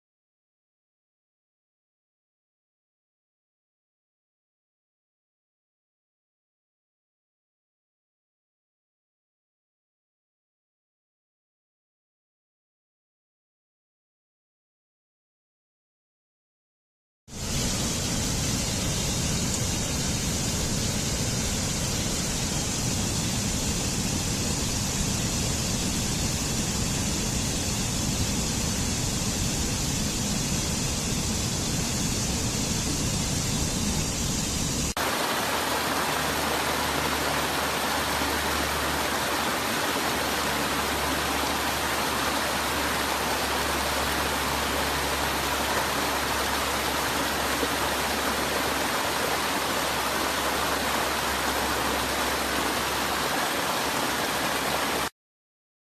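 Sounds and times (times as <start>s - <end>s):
hissing water: 17.3s - 55.1s
waterfall roaring: 17.4s - 55.1s.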